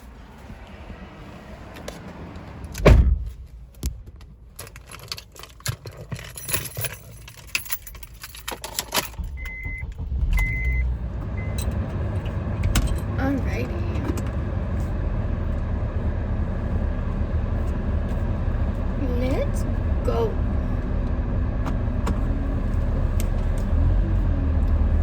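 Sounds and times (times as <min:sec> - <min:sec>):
low steady rumble: 0:00.0 - 0:25.0
heavy thump: 0:02.8 - 0:03.4
keys jangling and clicking: 0:04.5 - 0:09.6.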